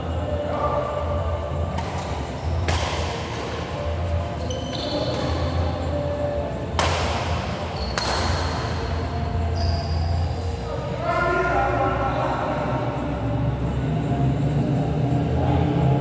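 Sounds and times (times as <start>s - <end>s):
racket hitting shuttlecock: 1.7s - 3.7s, 6.8s - 8.9s.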